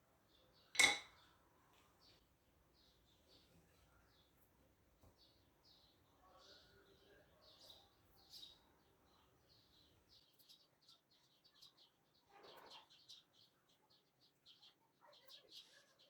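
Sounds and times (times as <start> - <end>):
faint bird chirping: 5.1 - 16.0.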